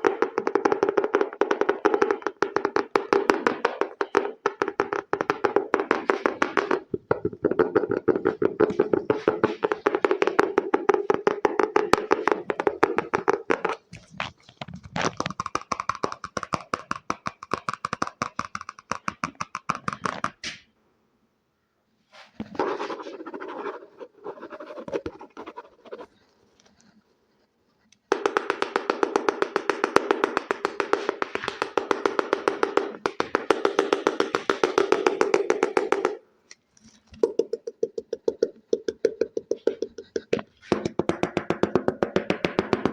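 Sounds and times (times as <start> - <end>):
fingers tapping on objects: 0.0 - 20.5, 27.9 - 36.2, 37.1 - 42.9
scratchy strokes: 22.1 - 27.9.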